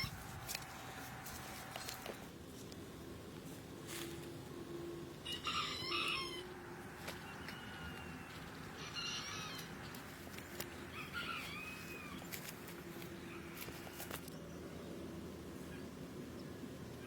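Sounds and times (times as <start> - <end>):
rooster crowing: 5.2 - 10.0, 10.8 - 12.3.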